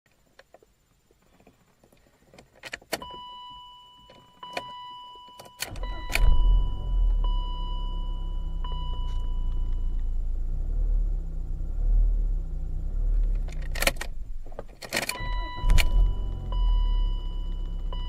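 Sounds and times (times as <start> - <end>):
car engine cranking and idling: 5.6 - 18.0
electronic chime tone: 15.2 - 18.0.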